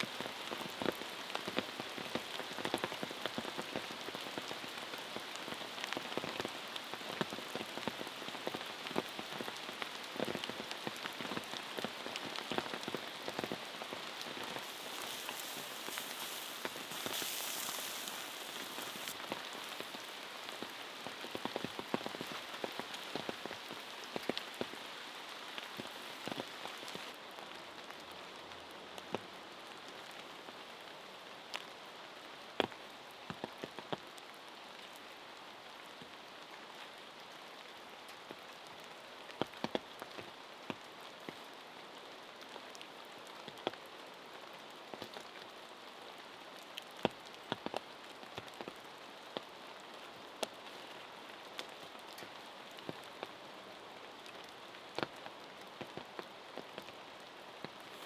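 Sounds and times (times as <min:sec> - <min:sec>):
rain falling: 0:00.0 - 0:28.6, 0:44.4 - 0:58.0.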